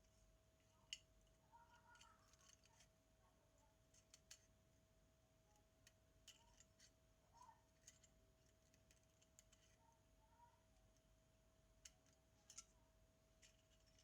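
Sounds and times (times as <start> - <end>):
faint steady hum: 0.0 - 14.0
small clicks and ticks: 0.6 - 3.0, 3.6 - 4.6, 5.5 - 11.1, 11.7 - 14.0.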